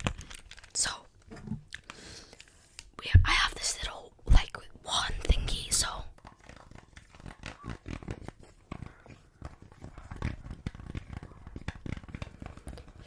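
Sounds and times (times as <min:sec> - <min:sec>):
wand tapping and scratching: 0:03.1 - 0:13.0.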